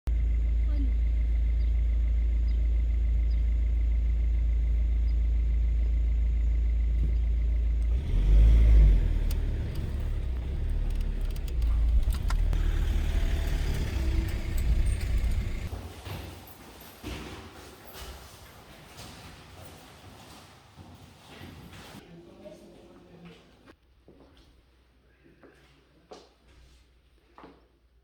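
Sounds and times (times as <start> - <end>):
car rumbling from inside: 0.1 - 15.8.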